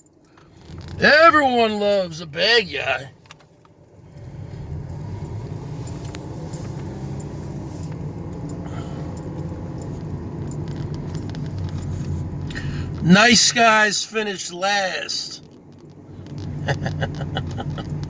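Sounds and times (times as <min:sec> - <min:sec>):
light clicks and jingles: 0:03.1 - 0:13.0, 0:15.4 - 0:18.0
car rumble inside cabin: 0:03.1 - 0:13.8, 0:15.9 - 0:18.0.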